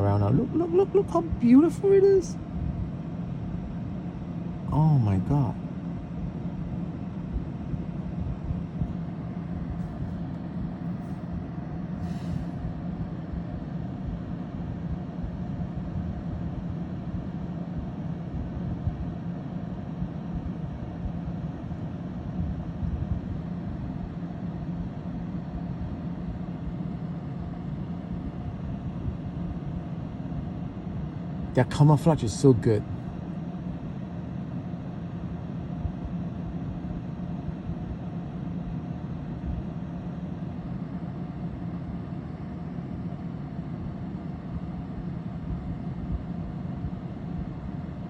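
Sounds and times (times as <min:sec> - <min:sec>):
engine rumbling: 0:00.0 - 0:02.4
low hum: 0:00.0 - 0:48.0.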